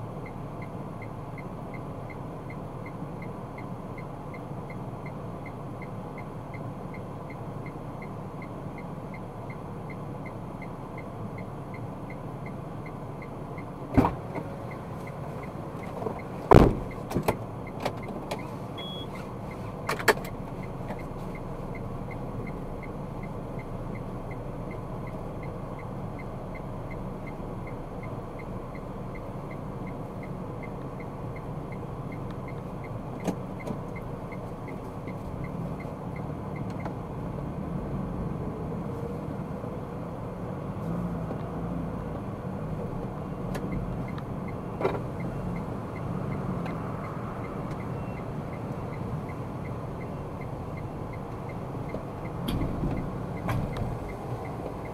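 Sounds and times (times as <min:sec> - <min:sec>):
road and engine rumble: 0:00.0 - 0:54.9
sharp knocks and thumps: 0:16.0 - 0:18.4, 0:52.4 - 0:54.0
short beep: 0:18.8 - 0:19.2, 0:47.9 - 0:48.3.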